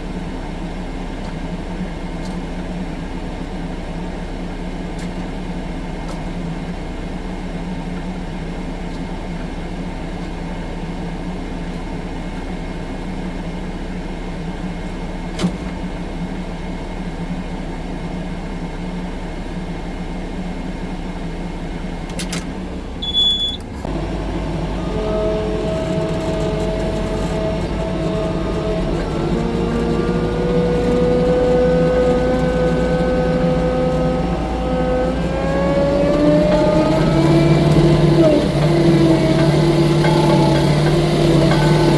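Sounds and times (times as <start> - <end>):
diesel engine running: 0.0 - 41.9
loud clatter: 23.9 - 41.9.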